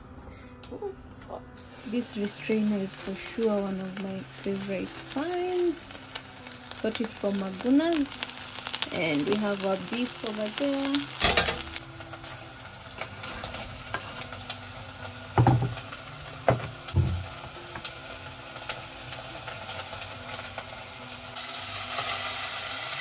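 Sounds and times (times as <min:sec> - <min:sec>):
beef sizzling in a pan: 0:01.7 - 0:23.0.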